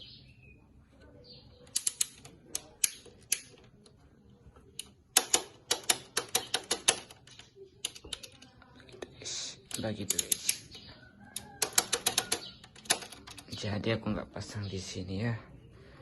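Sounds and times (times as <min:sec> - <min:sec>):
sharp clicks of cable fitting: 0:01.7 - 0:03.6.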